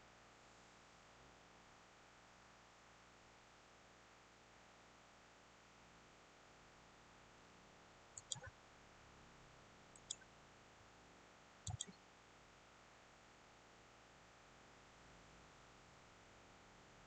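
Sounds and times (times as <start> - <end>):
mouse buttons clicking: 8.2 - 8.5, 10.0 - 10.2, 11.7 - 12.0.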